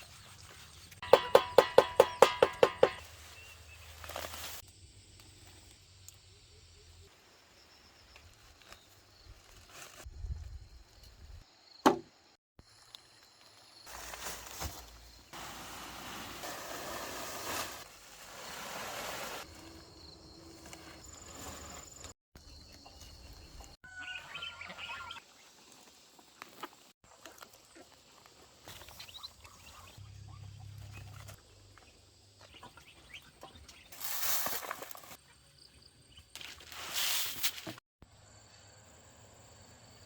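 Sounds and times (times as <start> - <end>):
outdoor rural ambience: 0.0 - 40.0
bird chirps: 22.4 - 25.2.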